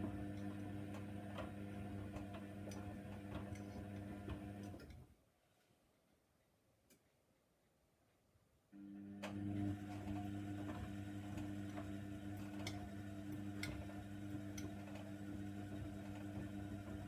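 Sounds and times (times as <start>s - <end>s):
washing machine motor humming: 0.0s - 4.9s, 8.8s - 17.0s.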